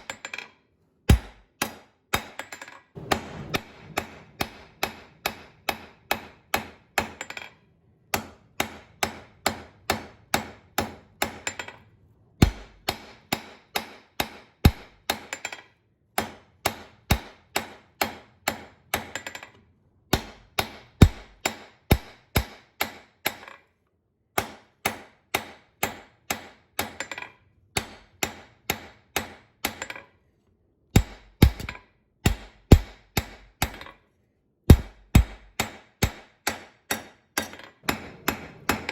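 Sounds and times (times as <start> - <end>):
hammer striking iron on anvil: 1.1 - 7.5, 31.0 - 33.9, 34.7 - 38.9.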